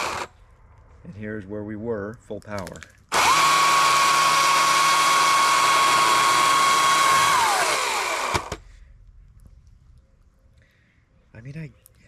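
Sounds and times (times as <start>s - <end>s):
electric chainsaw whine: 0.0s - 0.3s, 3.1s - 8.6s.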